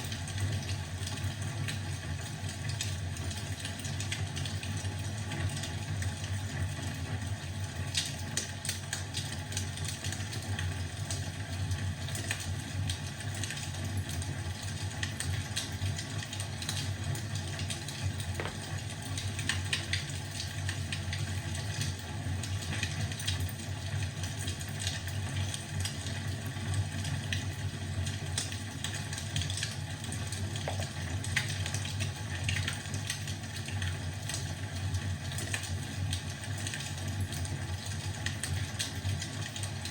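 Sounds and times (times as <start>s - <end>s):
fireplace crackling and popping: 14.1s - 26.1s, 27.3s - 33.9s.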